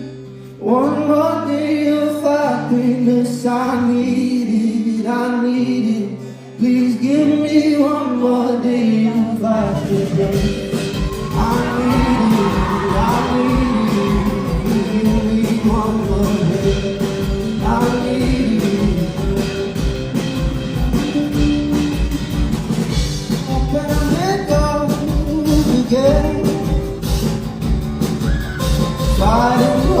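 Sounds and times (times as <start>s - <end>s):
man singing: 0.0s - 20.2s, 23.2s - 27.2s, 28.6s - 30.0s
band with steady drum beat: 9.7s - 30.0s.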